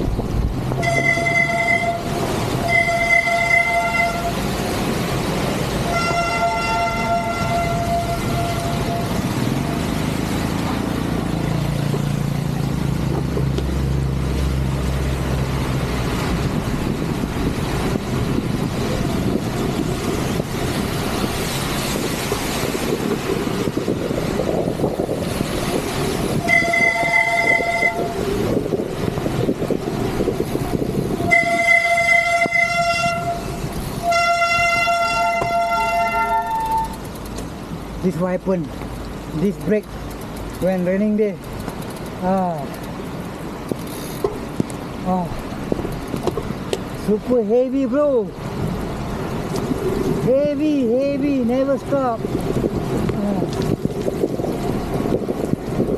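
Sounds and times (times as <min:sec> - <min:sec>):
steady rain: 0:00.0 - 0:55.9
wind noise: 0:00.0 - 0:55.9
bicycle brakes squealing: 0:00.8 - 0:04.3, 0:26.4 - 0:28.2, 0:31.2 - 0:37.1, 0:43.8 - 0:44.3.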